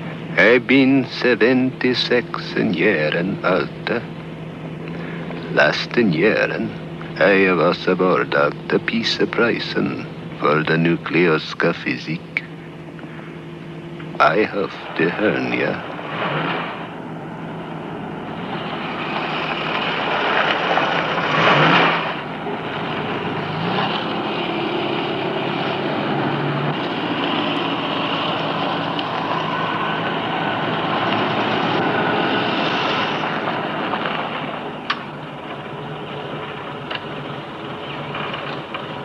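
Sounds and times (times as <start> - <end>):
car engine running: 0.0 - 39.0.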